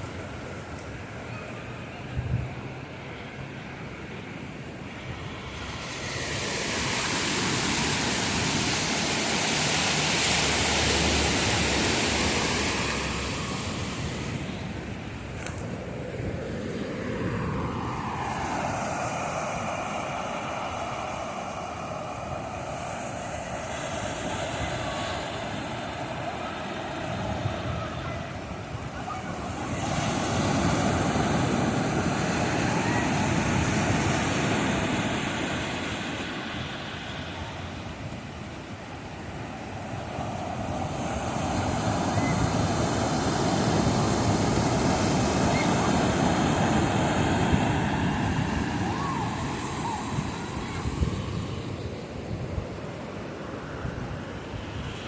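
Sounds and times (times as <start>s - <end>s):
engine drone: 0.1s - 37.8s
ocean surf washing in: 2.6s - 55.0s.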